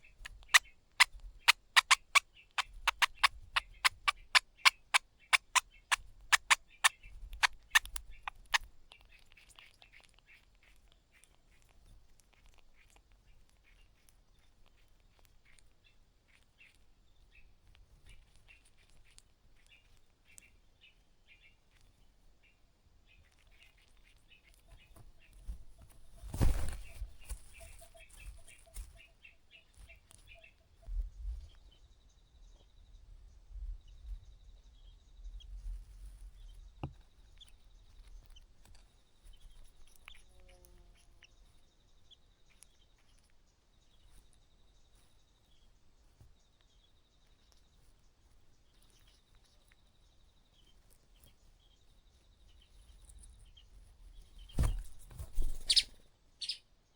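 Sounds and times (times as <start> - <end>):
nestlings chirping: 0.0 - 32.7, 33.8 - 56.8.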